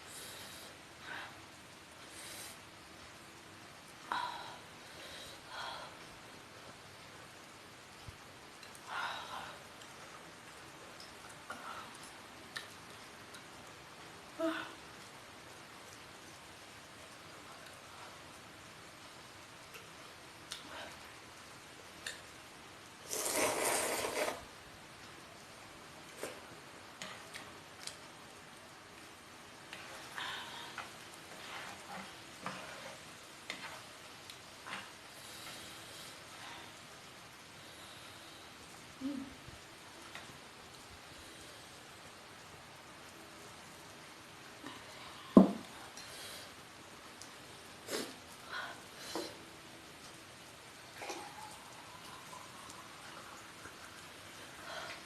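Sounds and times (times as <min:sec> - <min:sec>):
faint steady hiss: 0:00.0 - 0:55.0
noisy eating burst: 0:23.0 - 0:24.5.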